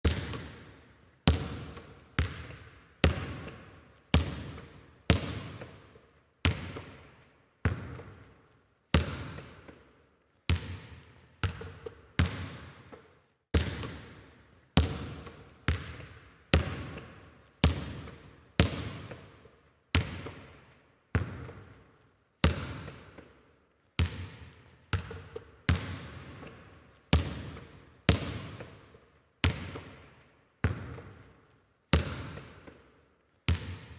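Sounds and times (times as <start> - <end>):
basketball bouncing: 0.0 - 8.4, 9.0 - 9.8, 10.5 - 20.6, 21.2 - 21.8, 22.4 - 23.4, 24.0 - 32.8, 33.5 - 33.9.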